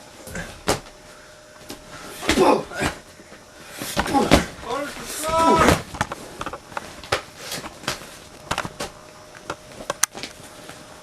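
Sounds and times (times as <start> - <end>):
bodies thudding on wrestling ring: 0.4 - 1.0, 3.9 - 6.0.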